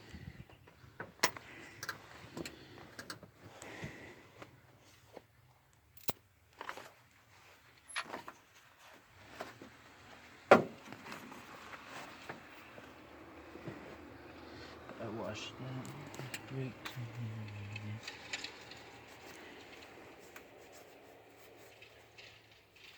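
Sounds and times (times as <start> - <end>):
metal tools and parts clinking: 5.9 - 6.8, 7.8 - 8.4.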